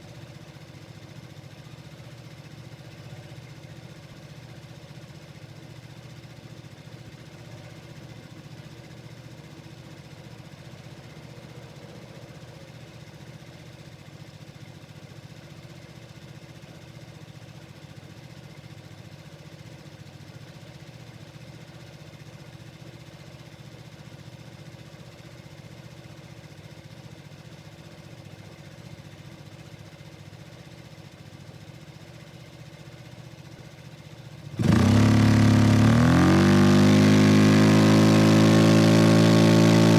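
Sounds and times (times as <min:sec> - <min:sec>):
scooter engine idling: 0:00.0 - 0:36.1.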